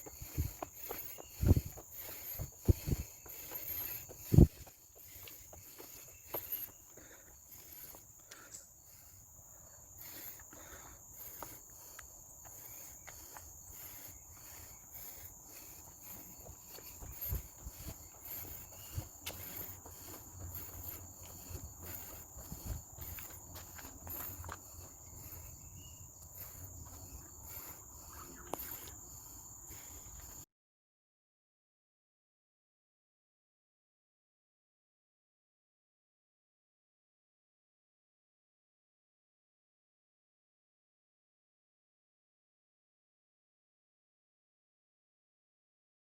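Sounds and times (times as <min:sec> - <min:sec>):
footsteps on trail: 0:00.0 - 0:30.4
insects droning: 0:00.0 - 0:30.5.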